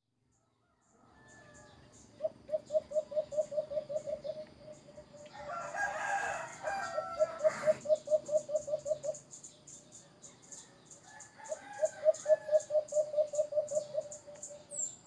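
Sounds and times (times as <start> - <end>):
long loud bird call: 0.7 - 9.3, 11.0 - 15.0
short repeated bird calls: 6.7 - 9.3.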